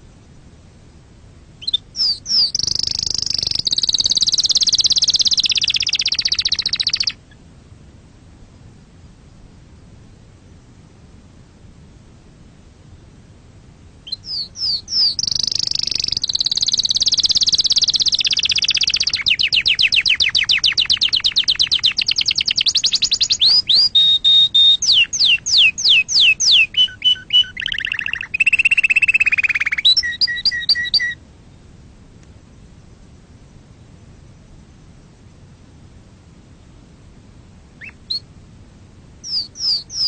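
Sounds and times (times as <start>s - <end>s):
canary singing: 1.6s - 7.4s, 14.0s - 31.2s, 37.8s - 38.3s, 39.2s - 40.0s.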